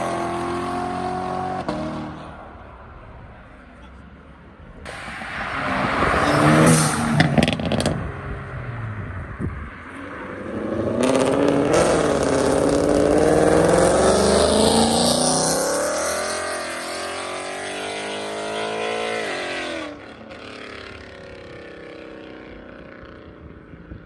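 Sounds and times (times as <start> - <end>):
car engine revving: 4.8 - 22.9.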